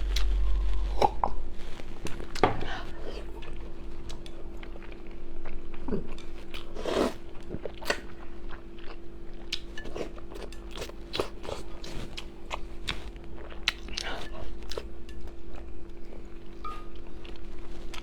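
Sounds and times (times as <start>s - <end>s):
person chewing and biting: 6.4s - 14.9s.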